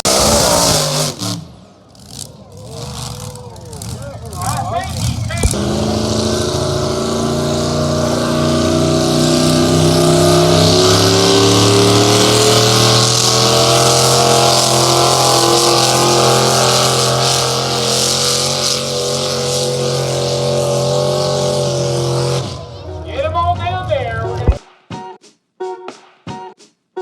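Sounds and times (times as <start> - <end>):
engine running at high revs: 0.0 - 23.1.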